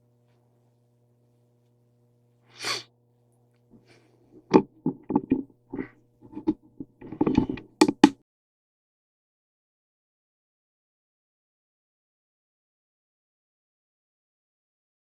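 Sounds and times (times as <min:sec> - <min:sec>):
steady low hum: 0:00.0 - 0:08.2
short hiss: 0:02.5 - 0:02.9
irregular knocks and bumps: 0:04.4 - 0:08.2.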